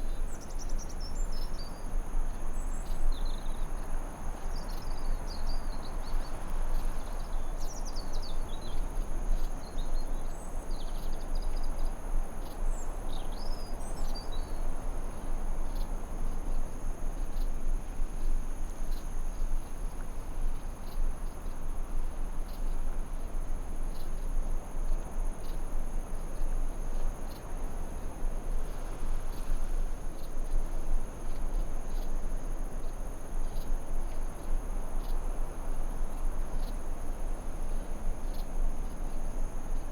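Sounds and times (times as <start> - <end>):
insects droning: 20.7 - 39.9.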